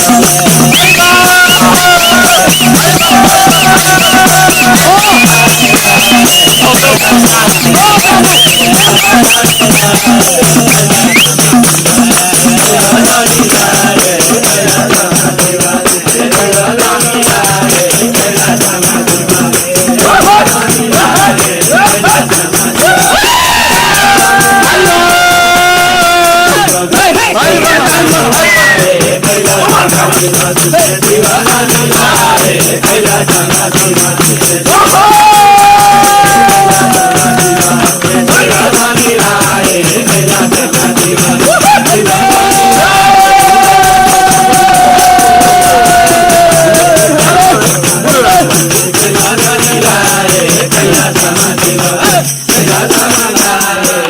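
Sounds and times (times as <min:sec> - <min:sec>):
fast folk percussion: 0:00.0 - 0:54.0
wavering melody line: 0:00.4 - 0:11.4.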